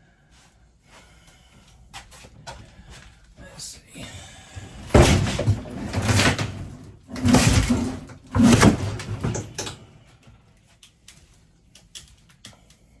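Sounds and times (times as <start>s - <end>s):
fixture rattling and creaking: 4.5s - 10.2s.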